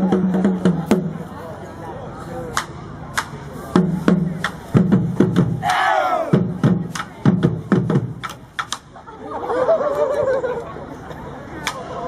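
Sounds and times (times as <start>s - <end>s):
drum beats: 0.0s - 1.2s, 2.5s - 8.8s
crowd shouting together: 5.6s - 6.5s.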